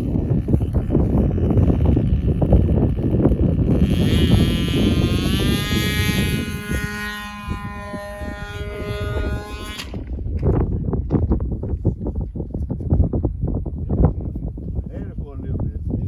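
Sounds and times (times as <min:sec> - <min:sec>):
model airplane engine in flight: 0:00.0 - 0:10.4
wind noise on microphone: 0:00.0 - 0:16.0.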